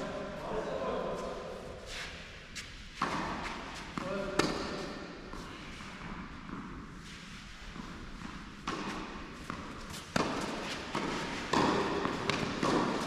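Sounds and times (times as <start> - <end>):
tennis ball hits: 8.6 - 13.0.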